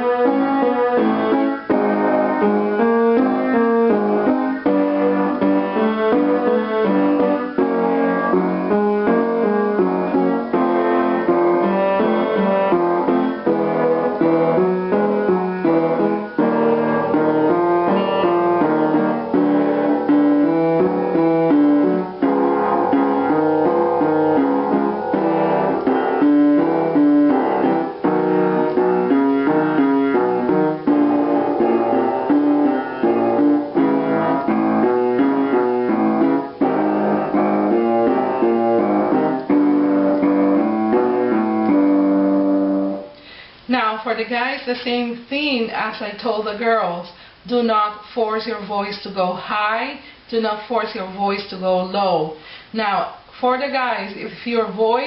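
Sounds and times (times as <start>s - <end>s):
piano playing patterns and chords: 0.0s - 43.8s.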